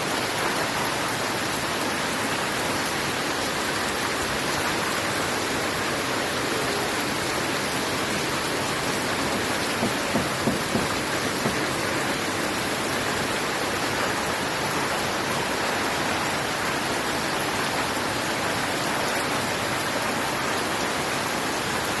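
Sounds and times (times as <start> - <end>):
steady rain falling: 0.0 - 22.0
louder splashes or taps: 9.7 - 11.8.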